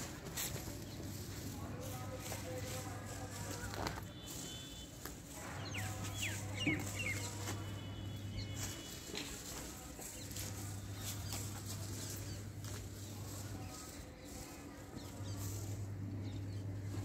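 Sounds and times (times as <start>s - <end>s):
steady low hum: 0.0s - 17.0s
birds chirping and calling: 5.3s - 17.0s.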